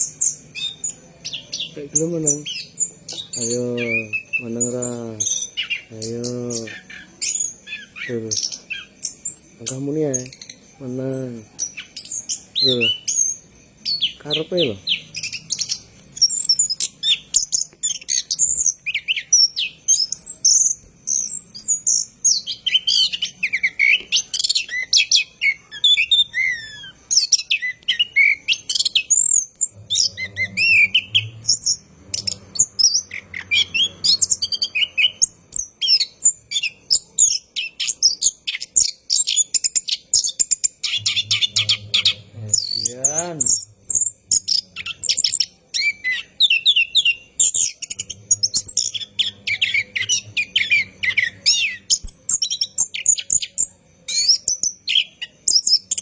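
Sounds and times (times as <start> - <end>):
thrush singing chirps and trills: 0.0 - 56.0.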